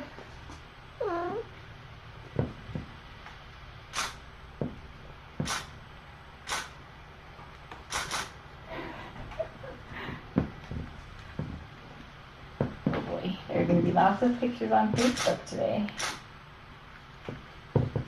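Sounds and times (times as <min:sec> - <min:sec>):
soft thuds: 0:02.3 - 0:03.0, 0:10.3 - 0:11.7, 0:12.6 - 0:13.2, 0:17.2 - 0:18.0
short hissy noises: 0:03.9 - 0:04.3, 0:06.5 - 0:06.8, 0:07.9 - 0:08.4, 0:15.0 - 0:16.3.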